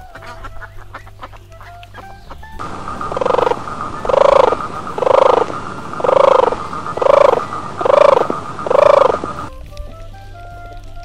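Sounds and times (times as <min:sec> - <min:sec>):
faint high hum: 0:02.6 - 0:09.5
tortoise calling: 0:02.6 - 0:09.5.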